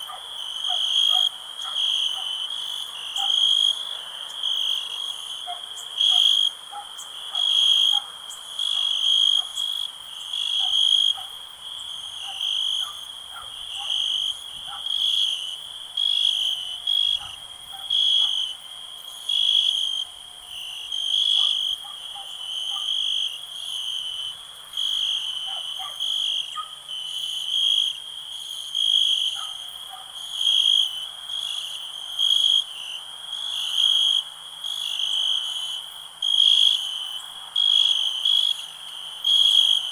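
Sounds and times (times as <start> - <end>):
frog calls: 0.0 - 2.4, 3.1 - 3.8, 5.4 - 11.4, 16.0 - 18.6, 21.1 - 23.3
crickets chirping: 0.0 - 39.9.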